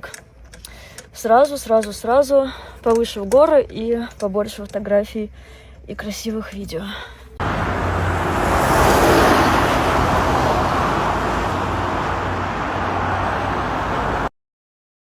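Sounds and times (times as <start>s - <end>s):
low engine hum: 7.3s - 14.3s
tyre and wind road noise: 7.4s - 14.3s.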